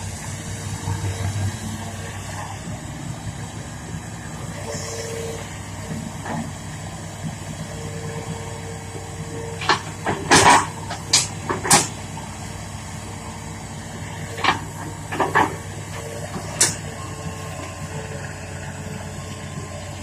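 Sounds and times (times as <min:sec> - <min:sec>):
diesel excavator engine running: 0:00.0 - 0:20.0
sharp metallic knocks and clanks: 0:09.6 - 0:12.0.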